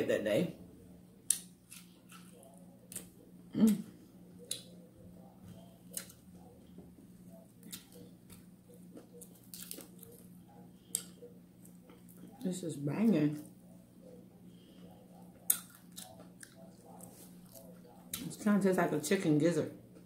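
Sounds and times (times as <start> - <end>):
faint low hum: 0.0 - 20.0
person chewing with mouth clicks: 1.3 - 4.8, 5.4 - 6.5, 7.3 - 12.4, 15.1 - 18.3
hummed mm: 3.5 - 4.6.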